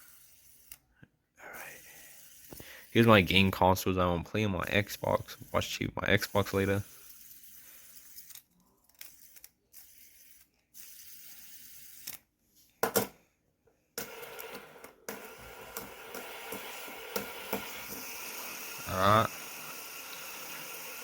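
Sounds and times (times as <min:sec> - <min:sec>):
fidget spinner whirring: 0:00.0 - 0:00.9, 0:01.5 - 0:03.6, 0:04.4 - 0:12.3.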